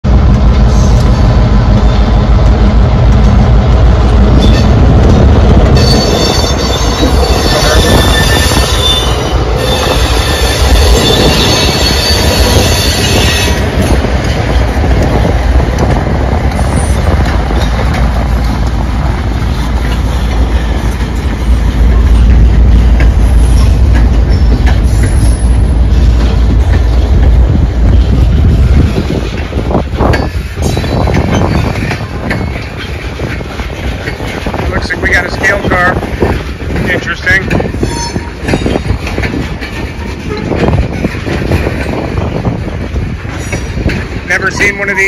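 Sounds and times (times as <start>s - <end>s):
diesel locomotive engine droning: 0.0s - 45.0s
train wheels rumbling on rails: 0.0s - 45.0s
train wheels squealing: 4.4s - 4.8s, 5.8s - 13.9s, 23.2s - 26.1s, 30.2s - 33.0s.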